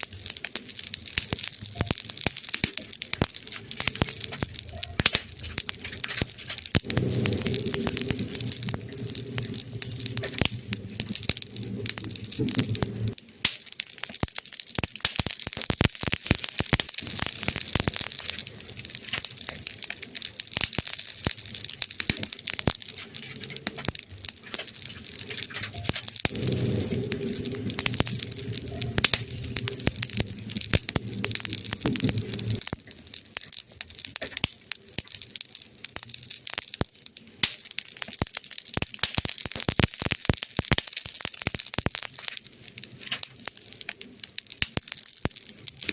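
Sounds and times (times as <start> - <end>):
wood fire crackling and popping: 0.0 - 45.9
low hum: 5.5 - 13.2, 25.2 - 32.7.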